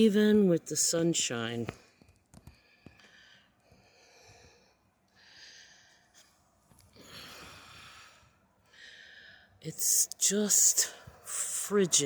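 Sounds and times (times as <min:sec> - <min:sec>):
faint breathing: 0:02.5 - 0:06.3, 0:06.9 - 0:09.6.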